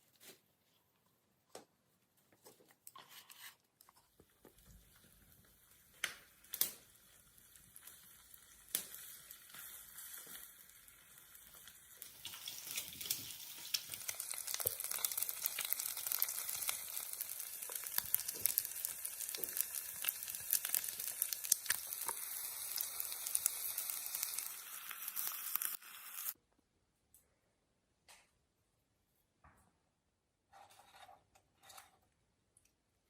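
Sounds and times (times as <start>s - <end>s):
food sizzling in a pan: 4.7s - 26.4s.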